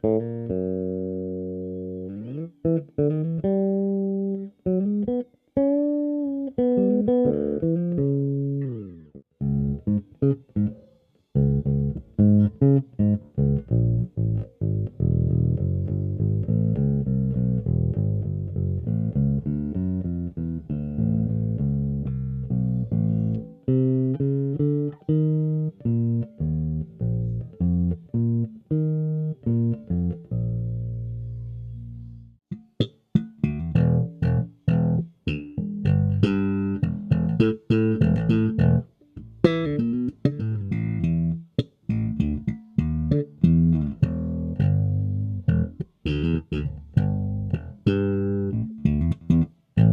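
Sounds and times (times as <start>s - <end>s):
electric bass plucked notes: 0.0s - 49.9s.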